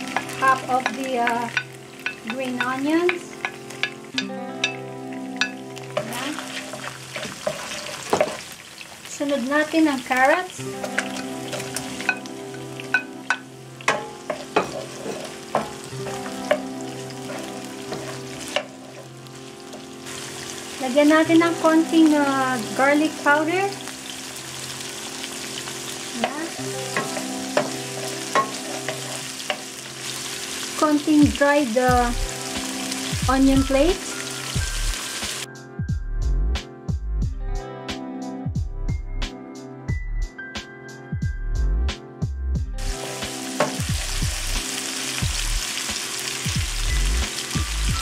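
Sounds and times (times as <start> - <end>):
background music with steady beat: 0.0 - 8.4, 10.1 - 48.0
vegetables sizzling in hot oil: 0.0 - 35.5, 42.8 - 48.0
wooden spatula knocking on pan: 7.1 - 8.4, 13.0 - 19.1, 26.2 - 29.7.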